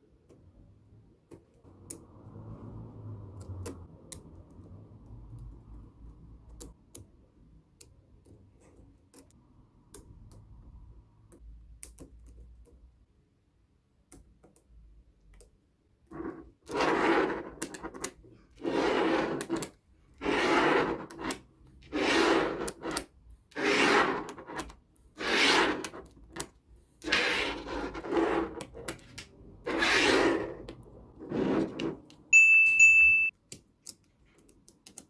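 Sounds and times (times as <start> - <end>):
magnetic balls rubbing: 18.6 - 19.6, 20.2 - 24.6, 25.2 - 26.3, 27.0 - 29.1, 29.7 - 32.0.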